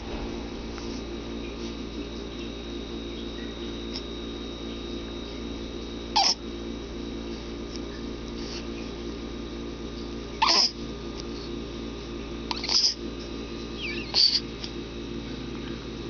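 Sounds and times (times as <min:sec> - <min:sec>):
steady background hum: 0:00.0 - 0:16.0
baby grunting squeak: 0:06.2 - 0:06.4, 0:10.4 - 0:10.7.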